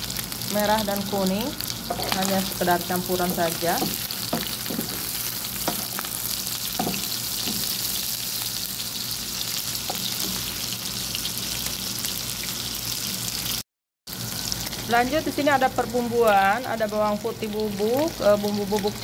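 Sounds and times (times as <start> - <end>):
meat sizzling in a pan: 0.0 - 19.0
wooden spatula scraping a pan: 3.2 - 6.1.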